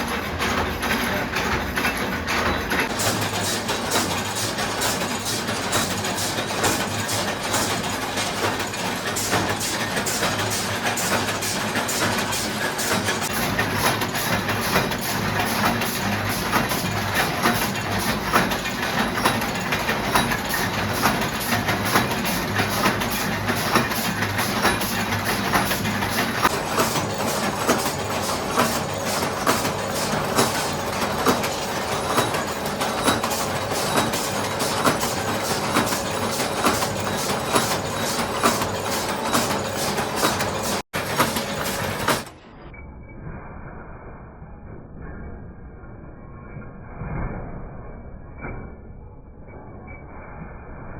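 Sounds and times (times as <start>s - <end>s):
metallic clatter: 0.0s - 42.4s
factory machine noise: 0.0s - 44.4s.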